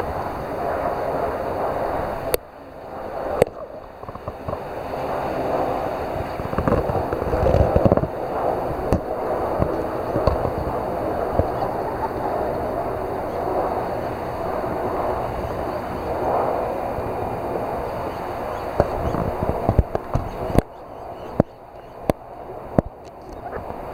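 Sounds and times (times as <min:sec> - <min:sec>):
rough sea washing on shore: 0:00.0 - 0:20.7
wind gusting on microphone: 0:00.0 - 0:23.9.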